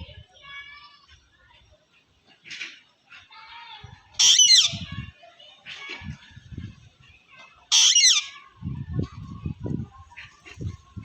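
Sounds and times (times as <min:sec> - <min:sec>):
parrot screeching: 0:04.2 - 0:04.9, 0:07.7 - 0:08.4.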